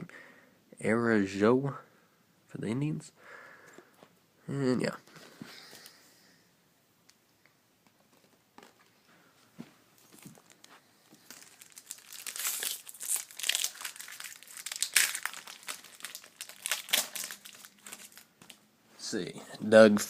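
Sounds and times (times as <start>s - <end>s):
foil wrapper crinkling: 10.0s - 18.6s.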